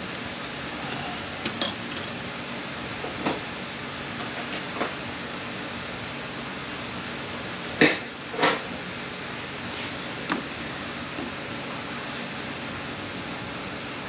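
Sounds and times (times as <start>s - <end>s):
hard knocks of tools handled: 1.4s - 2.2s.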